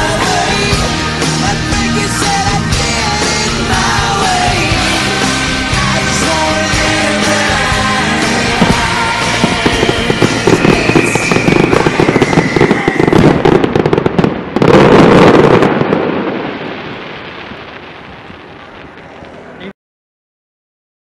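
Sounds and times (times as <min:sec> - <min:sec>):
fireworks cracking and banging: 0:00.0 - 0:19.7.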